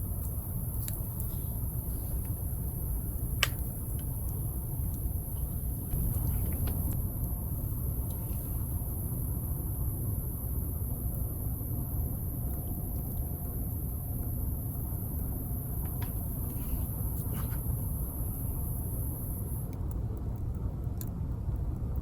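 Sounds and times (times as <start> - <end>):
wood fire crackling: 0.0 - 9.5.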